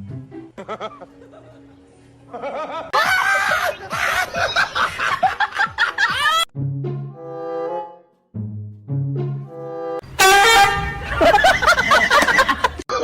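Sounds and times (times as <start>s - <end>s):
music: 0.0s - 12.4s
quick laughter: 2.9s - 6.5s, 10.9s - 13.0s.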